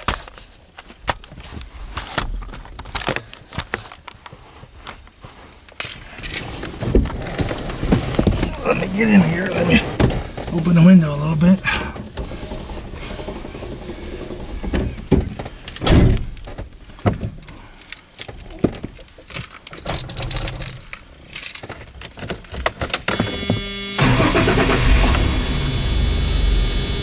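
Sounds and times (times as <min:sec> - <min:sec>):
starter cranking: 0:23.1 - 0:27.0
truck engine running: 0:23.3 - 0:27.0.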